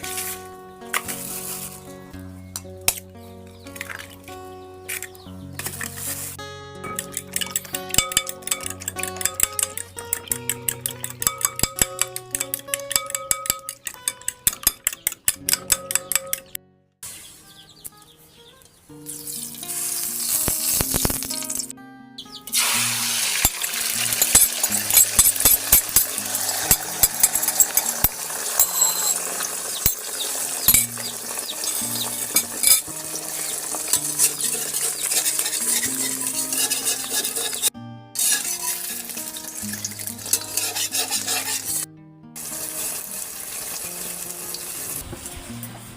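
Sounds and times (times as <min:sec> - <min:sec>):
background music: 0:00.0 - 0:16.9, 0:17.6 - 0:45.9
vegetables sizzling in a pan: 0:01.1 - 0:01.9, 0:19.0 - 0:21.7, 0:22.5 - 0:41.8, 0:42.4 - 0:45.1
utensil stirring in a pan: 0:07.0 - 0:14.6, 0:23.1 - 0:44.9.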